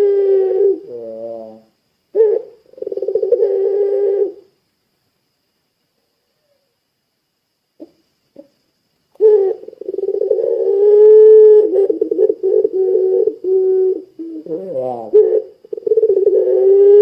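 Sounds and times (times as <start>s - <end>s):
dove cooing: 0.0s - 4.5s, 9.2s - 17.0s.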